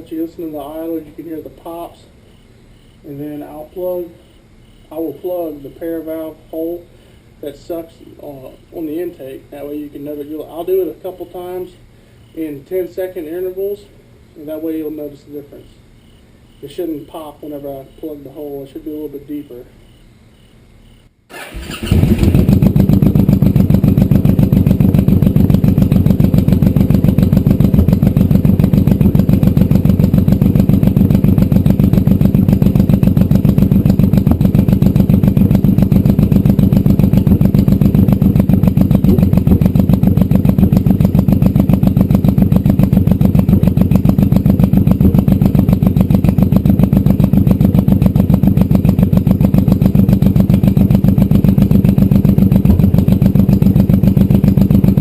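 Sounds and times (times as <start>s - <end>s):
motorcycle idling: 21.4s - 55.0s.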